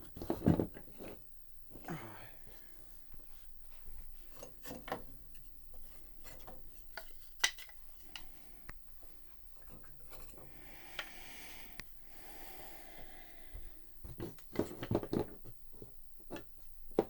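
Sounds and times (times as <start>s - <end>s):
small hard parts clicking and knocking: 14.1s - 17.0s.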